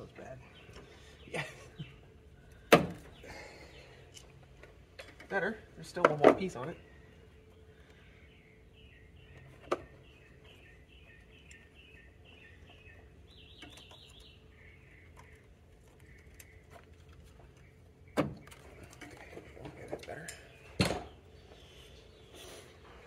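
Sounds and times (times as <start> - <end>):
bird chirping and trilling: 7.8 - 18.9.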